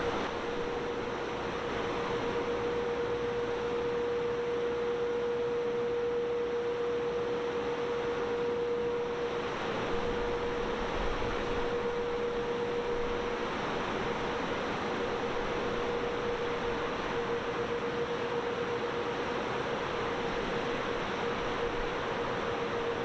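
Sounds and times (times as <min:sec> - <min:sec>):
mid-pitched machine whine: 0:00.0 - 0:23.0.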